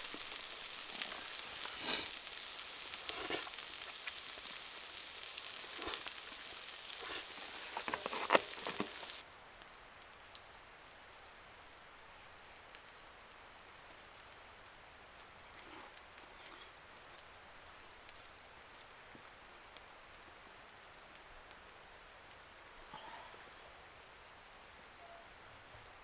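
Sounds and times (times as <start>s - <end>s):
meat sizzling: 0.0s - 9.2s.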